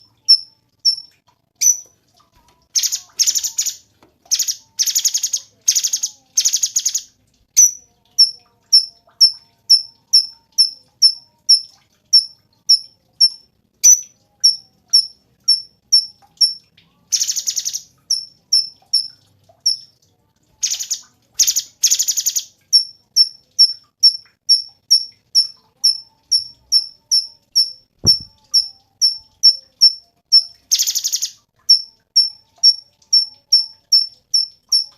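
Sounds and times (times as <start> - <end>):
bird chirping: 0.0 - 1.9, 2.8 - 19.9, 20.6 - 34.9
buzzy rattling bird calls: 2.7 - 7.0, 17.1 - 19.1, 20.6 - 22.5, 30.7 - 31.3.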